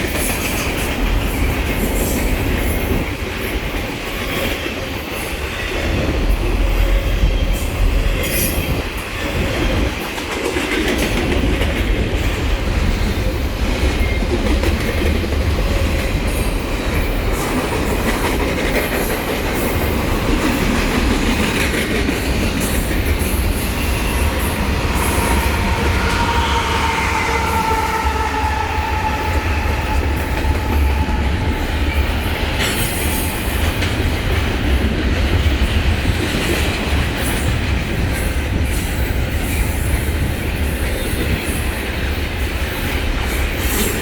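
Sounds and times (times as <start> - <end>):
train rumbling past: 0.0 - 44.0
high wheel squeal: 23.6 - 32.1.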